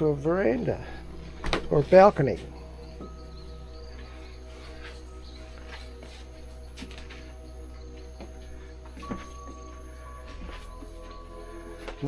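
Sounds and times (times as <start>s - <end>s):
low steady hum: 0.0s - 12.0s
soft music of held notes: 0.0s - 12.0s.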